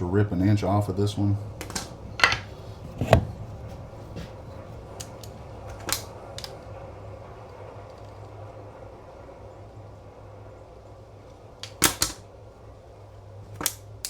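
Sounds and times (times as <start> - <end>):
steady low hum: 0.0 - 14.0
tools knocking on workbench: 2.2 - 3.3.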